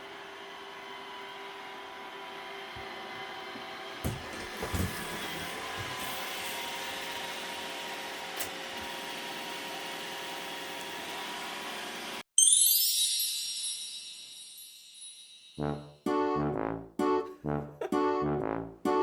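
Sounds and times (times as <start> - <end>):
robot vacuum whirring: 3.0 - 12.2.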